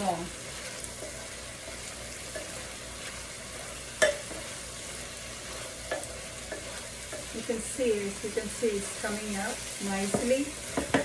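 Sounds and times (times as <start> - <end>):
food sizzling in a skillet: 0.0 - 11.0
spatula knocking against pan: 4.0 - 4.4, 10.0 - 11.0.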